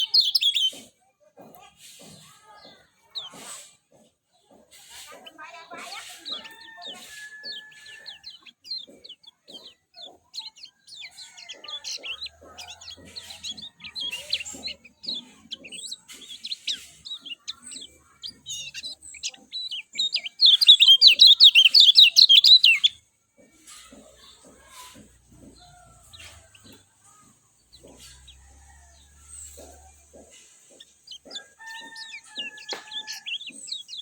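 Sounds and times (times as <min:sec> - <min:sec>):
bird trill: 0:00.0 - 0:00.8, 0:05.3 - 0:23.1, 0:23.7 - 0:34.0
bird chirping and twittering: 0:00.0 - 0:34.0.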